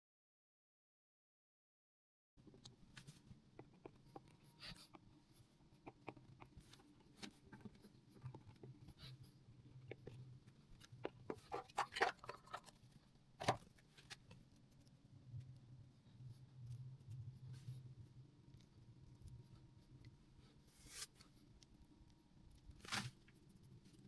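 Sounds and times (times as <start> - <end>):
low steady hum: 2.4 - 24.0.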